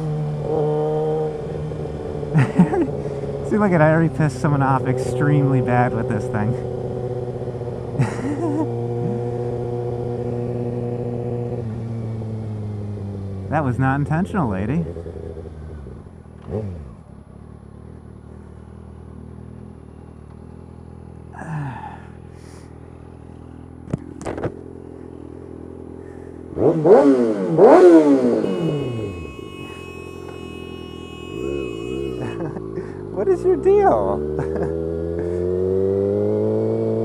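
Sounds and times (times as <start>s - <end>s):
engine revving: 0.0s - 13.2s, 14.7s - 17.0s, 26.0s - 37.0s
motorcycle engine idling: 17.1s - 26.6s, 27.6s - 33.3s.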